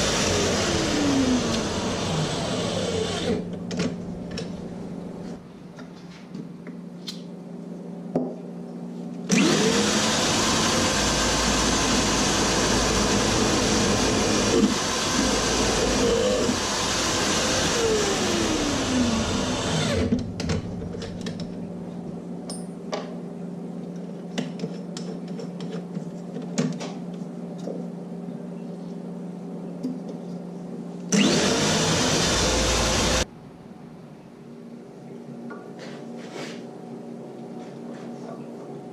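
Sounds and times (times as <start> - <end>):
high-speed electric motor: 0.0 - 3.5, 9.3 - 20.2, 31.1 - 33.3
shop machinery hum: 0.0 - 38.9.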